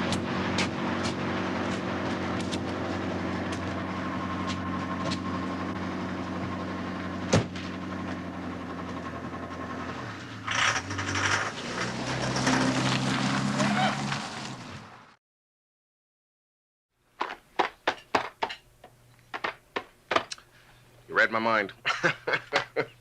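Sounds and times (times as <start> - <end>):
mechanical hum and rumble: 0.0 - 15.2.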